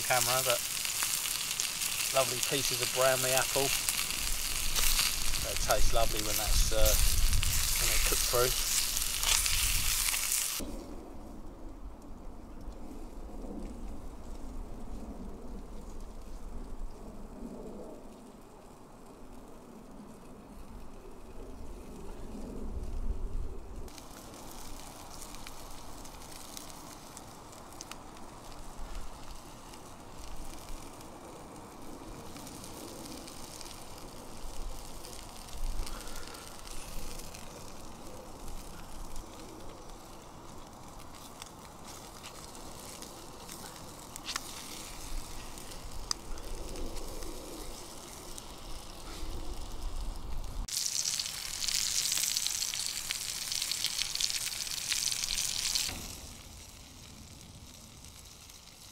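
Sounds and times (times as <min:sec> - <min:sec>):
sausages sizzling in a pan: 0:00.0 - 0:10.6, 0:23.9 - 0:58.9
campfire crackling: 0:00.0 - 0:58.9
fire popping: 0:00.0 - 0:58.9.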